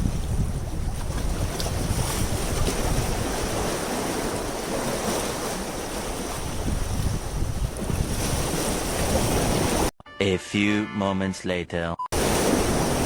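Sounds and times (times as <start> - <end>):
wind buffeting microphone: 0.0 - 4.8, 5.5 - 9.9
sea water washing: 0.7 - 9.9, 12.2 - 13.0.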